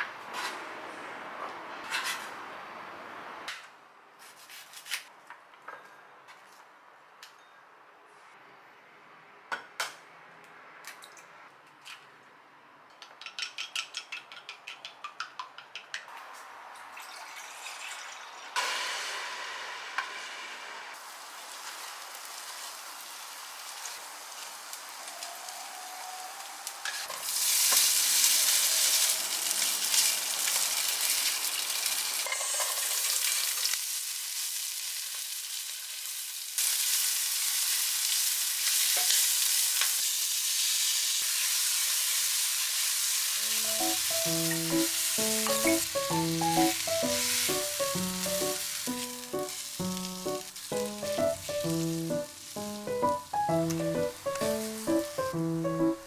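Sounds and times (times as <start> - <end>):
food sizzling in pan: 17.0 - 56.0
light background music: 43.4 - 56.0.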